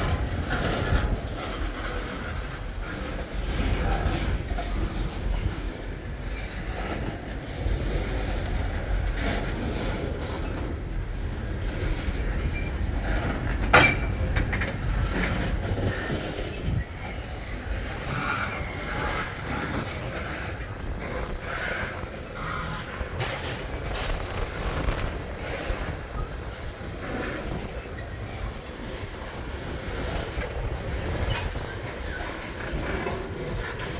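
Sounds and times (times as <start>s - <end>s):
train wheels clattering on rails: 0.0s - 33.9s
sharp metallic bang: 13.7s - 15.4s.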